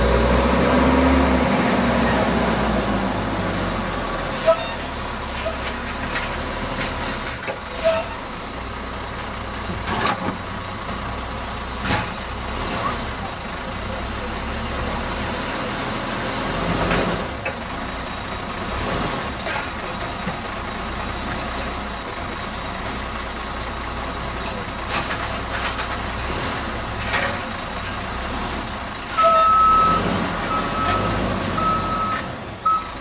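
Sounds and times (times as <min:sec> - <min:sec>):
garbage truck engine running: 0:00.0 - 0:33.0
reversing beeper: 0:01.8 - 0:05.7, 0:29.1 - 0:33.0.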